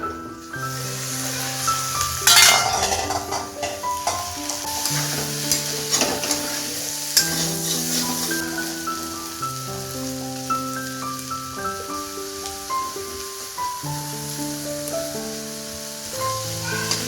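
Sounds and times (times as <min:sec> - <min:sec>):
background music with held notes: 0:00.0 - 0:17.0
food sizzling in a pan: 0:00.0 - 0:17.0
utensil scraping a pan: 0:01.2 - 0:08.9.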